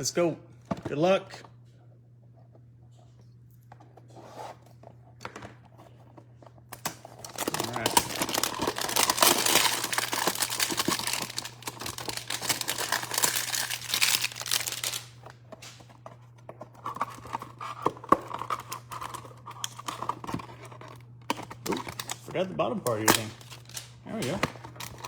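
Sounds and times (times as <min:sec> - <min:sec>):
cards rustling: 0:03.7 - 0:25.0
packaging crinkling and tearing: 0:06.8 - 0:16.0, 0:16.8 - 0:25.0.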